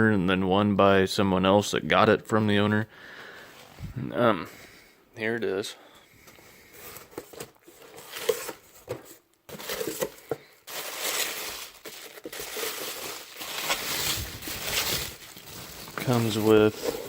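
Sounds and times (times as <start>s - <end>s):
paper and packaging crinkling: 6.7s - 17.0s.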